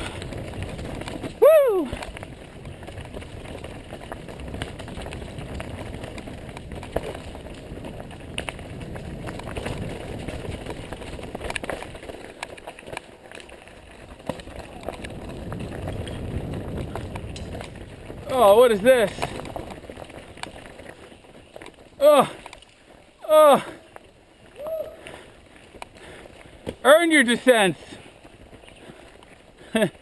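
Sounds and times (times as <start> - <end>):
bike rattling: 0.0 - 30.0
bike tyres rumbling on rock: 0.0 - 30.0
wheels knocking on rocks: 0.0 - 30.0.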